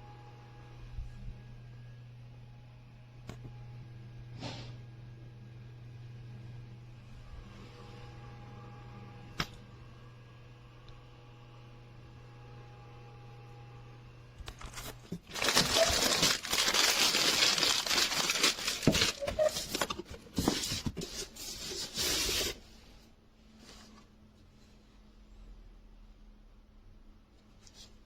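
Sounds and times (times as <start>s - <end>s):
crinkling and rustling: 14.4s - 22.7s.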